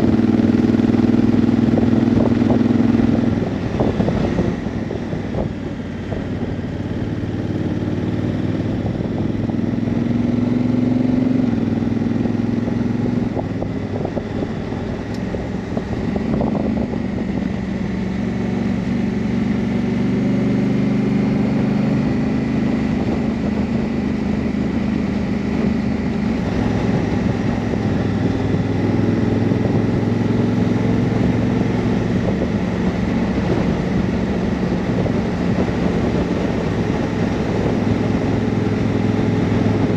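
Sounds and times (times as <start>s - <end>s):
wind noise: 0.0s - 10.5s, 12.6s - 19.8s, 21.5s - 39.9s
motorcycle engine running: 0.0s - 39.9s.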